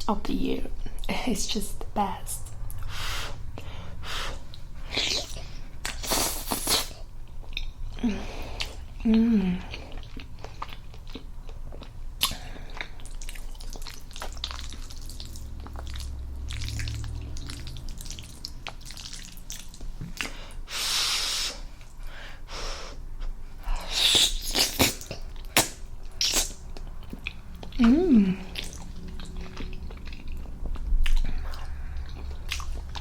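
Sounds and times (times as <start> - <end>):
person chewing: 2.6 - 22.1, 23.2 - 33.0
wet mouth clicks and smacks: 13.0 - 20.4, 24.1 - 27.8, 28.5 - 33.0.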